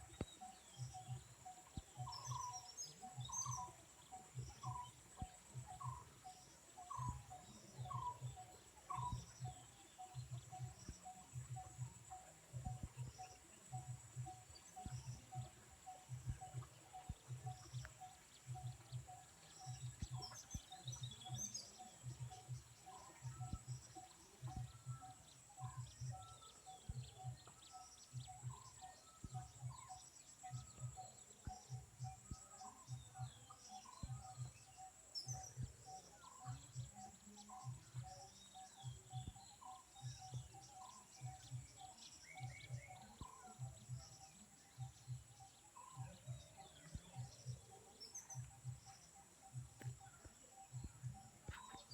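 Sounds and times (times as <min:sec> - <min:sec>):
small birds chirping: 0:00.0 - 0:51.9
soft low thumps: 0:46.0 - 0:51.9.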